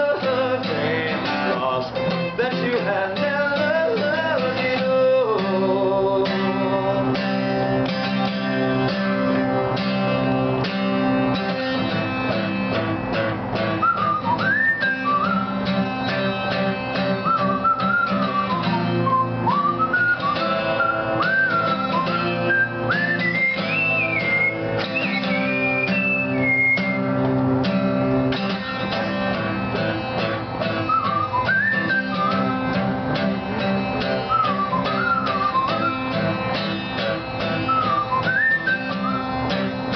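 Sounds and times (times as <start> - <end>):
guitar strumming: 0.0 - 39.9
whistled melody: 13.6 - 27.2, 27.8 - 39.9.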